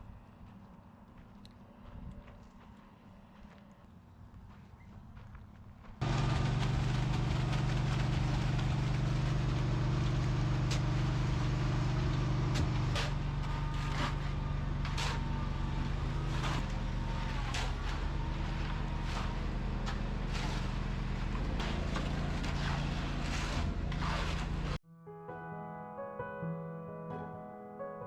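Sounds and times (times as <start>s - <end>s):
motor running steadily: 6.0s - 24.7s.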